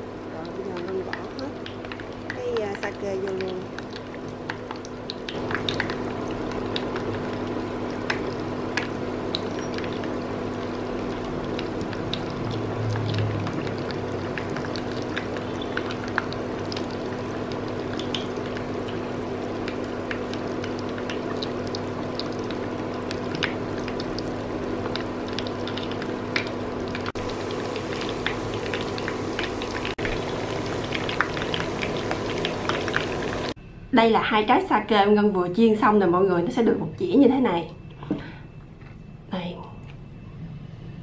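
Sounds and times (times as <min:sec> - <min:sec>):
food sizzling in hot oil: 0:00.0 - 0:33.6
stove cooling fan hum: 0:00.0 - 0:41.0
oil popping: 0:00.3 - 0:33.6.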